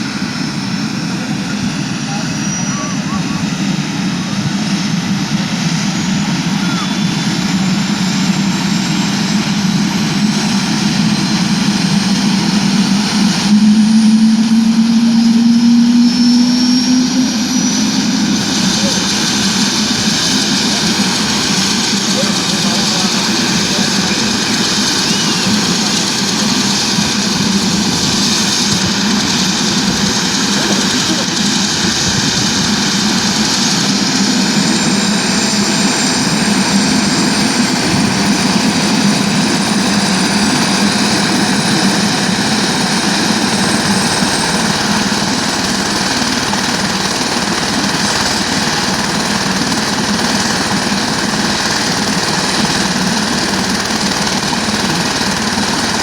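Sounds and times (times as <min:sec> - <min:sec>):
faint high whine: 0:00.0 - 0:29.9
helicopter engine and rotor: 0:00.0 - 0:56.0.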